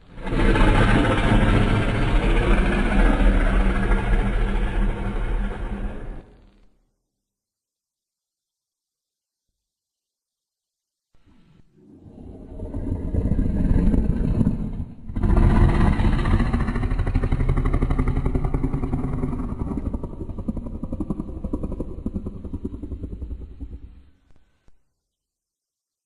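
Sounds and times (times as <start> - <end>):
deep rough monster roar: 0.0 - 6.4, 11.8 - 24.2.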